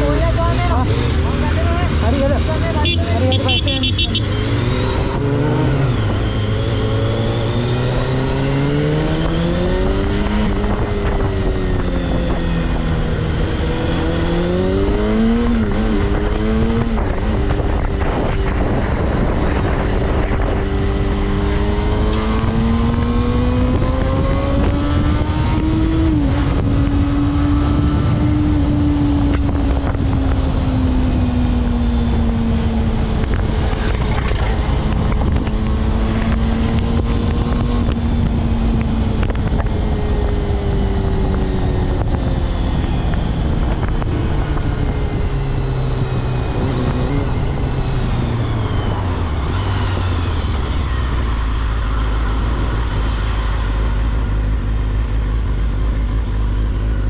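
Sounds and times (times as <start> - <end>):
motorcycle engine running: 0.0 - 8.2
wind rushing on helmet: 0.0 - 57.0.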